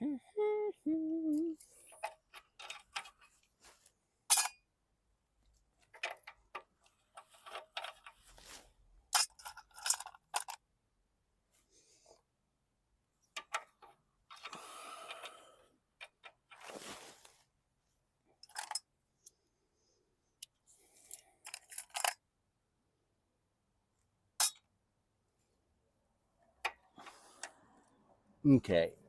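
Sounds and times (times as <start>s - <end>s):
metal hand tools clinking: 4.3s - 4.6s, 24.4s - 24.6s.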